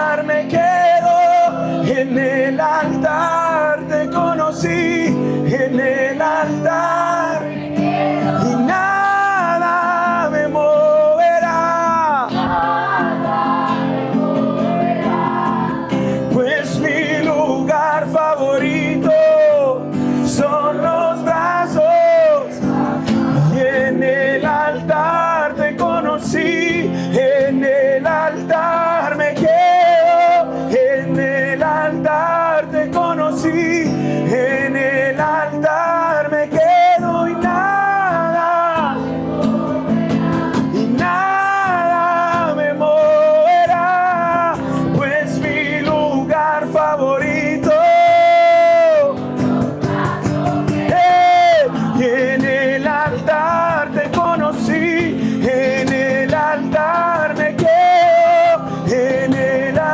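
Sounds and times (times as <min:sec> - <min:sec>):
person singing worship song: 0:00.0 - 0:59.9.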